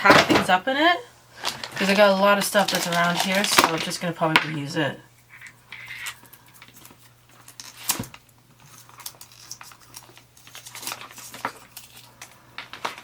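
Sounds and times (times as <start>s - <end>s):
packaging rustling and crinkling: 1.4s - 4.0s, 5.4s - 13.0s.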